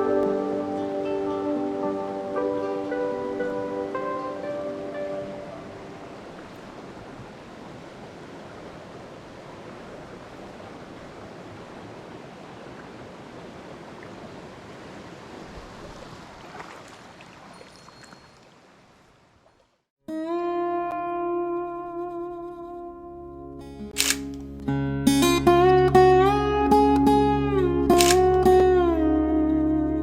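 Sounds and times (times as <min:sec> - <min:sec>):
stream water rushing: 0:00.0 - 0:19.7.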